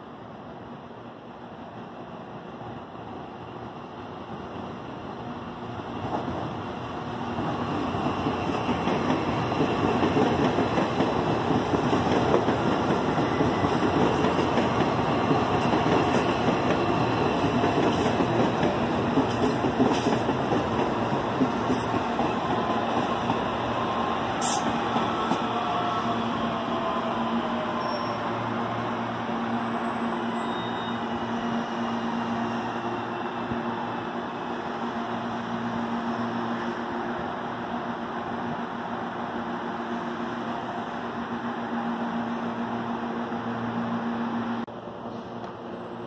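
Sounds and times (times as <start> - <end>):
faint train whine: 0.0 - 46.0
electric train rolling: 5.8 - 40.1.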